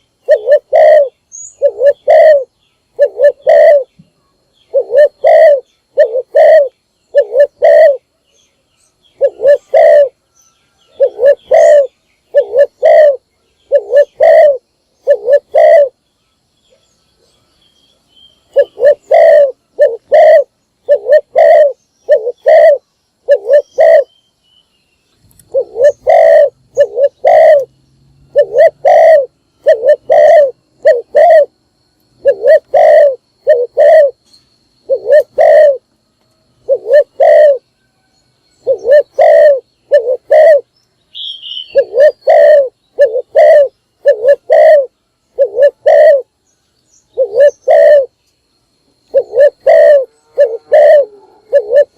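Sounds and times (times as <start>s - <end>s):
dove cooing: 0.0s - 3.9s, 4.7s - 8.1s, 9.2s - 10.2s, 10.9s - 16.0s, 18.5s - 24.1s, 25.4s - 27.7s, 28.3s - 31.5s, 32.2s - 34.2s, 34.8s - 35.8s, 36.6s - 37.6s, 38.6s - 40.7s, 41.5s - 46.3s, 47.2s - 48.2s, 49.1s - 51.9s.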